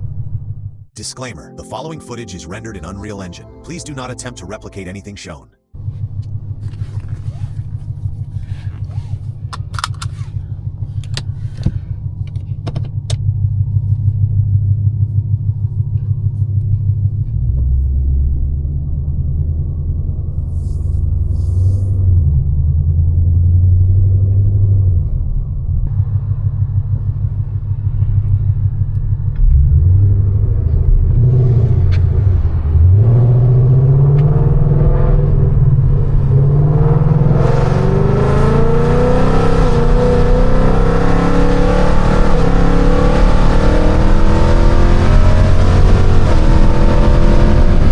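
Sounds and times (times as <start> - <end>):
car engine idling lumpily: 5.3 - 18.7, 24.4 - 32.8
sharp clicks: 9.5 - 10.3.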